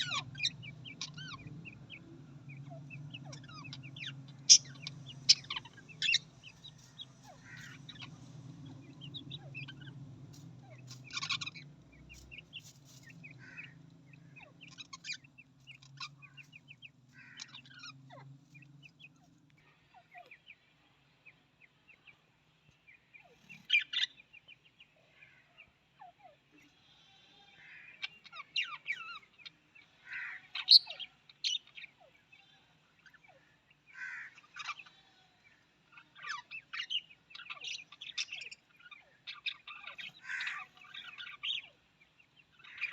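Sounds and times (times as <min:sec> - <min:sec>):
low steady hum: 0:00.0 - 0:23.6
budgerigars chirping: 0:00.0 - 0:26.8, 0:27.6 - 0:35.1, 0:35.8 - 0:42.9.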